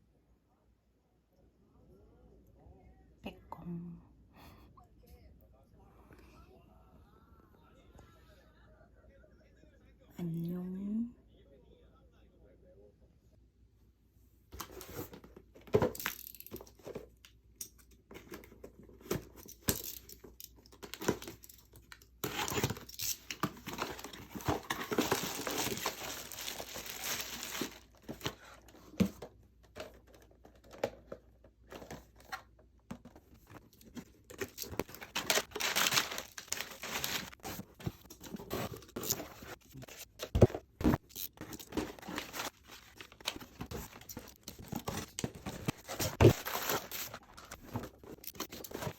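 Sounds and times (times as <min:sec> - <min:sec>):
packaging crinkling and tearing: 0:19.5 - 0:28.5, 0:33.4 - 0:48.9.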